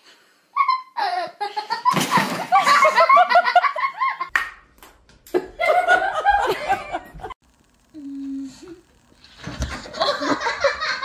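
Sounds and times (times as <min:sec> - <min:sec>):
people laughing: 0:01.0 - 0:04.3, 0:05.3 - 0:07.4, 0:09.8 - 0:11.0.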